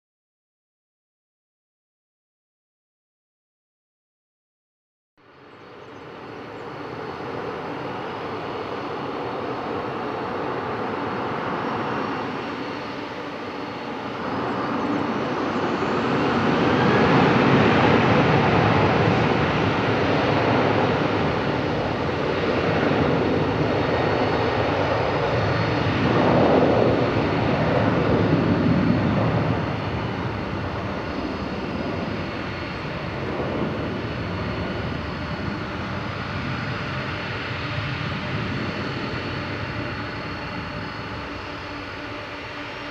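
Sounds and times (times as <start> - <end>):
jet engines running loud: 5.2 - 42.9.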